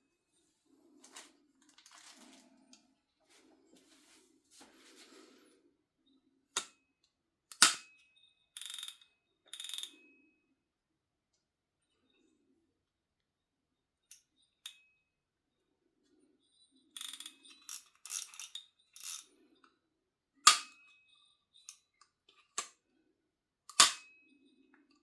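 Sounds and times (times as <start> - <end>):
packaging rustling and crinkling: 1.0 - 2.7.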